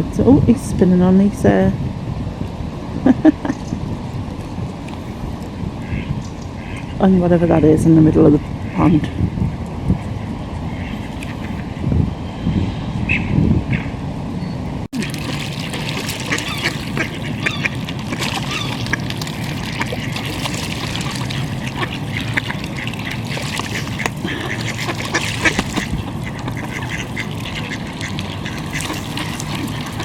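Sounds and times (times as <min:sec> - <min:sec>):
ducks quacking: 0:05.8 - 0:07.0, 0:08.2 - 0:09.2, 0:10.0 - 0:11.9, 0:13.1 - 0:14.0, 0:15.0 - 0:30.0.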